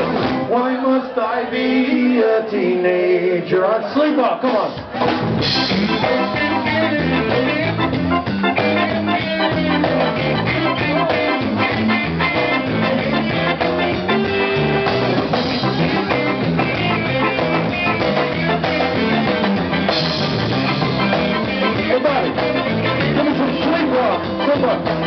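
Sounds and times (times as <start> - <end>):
bass: 0.0 - 0.6, 4.6 - 25.0
steady drum beat: 4.5 - 25.0
lead guitar melody: 4.9 - 25.0.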